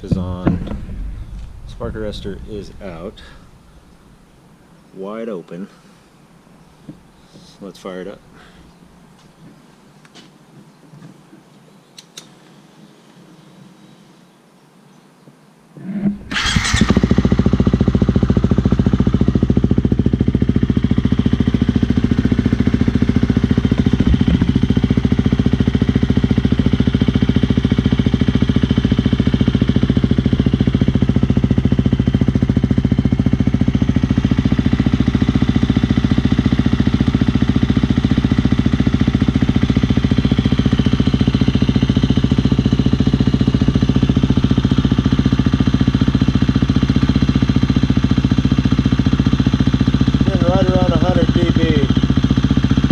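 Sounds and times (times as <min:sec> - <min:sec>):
motorcycle engine starting and running: 0:00.0 - 0:04.5, 0:15.8 - 0:52.9.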